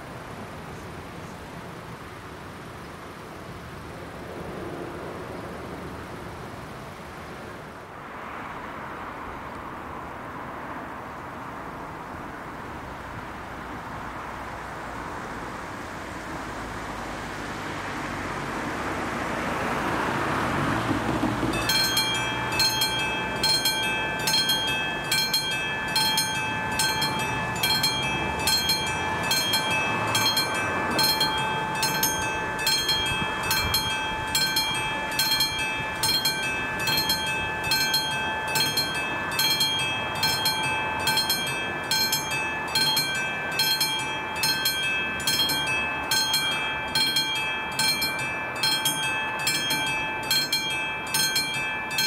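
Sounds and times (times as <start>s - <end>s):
level crossing warning bell: 19.7s - 52.0s.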